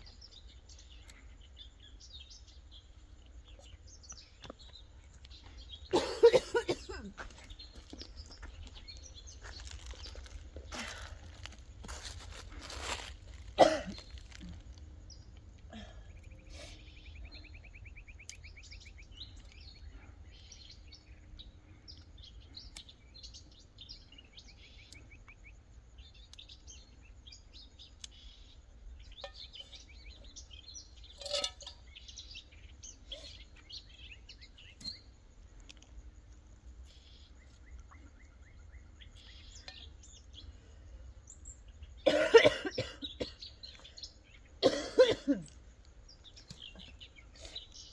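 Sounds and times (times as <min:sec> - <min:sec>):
small birds chirping: 0:00.0 - 0:47.9
person coughing: 0:05.9 - 0:07.2, 0:13.6 - 0:14.0, 0:42.0 - 0:43.4, 0:44.6 - 0:45.5.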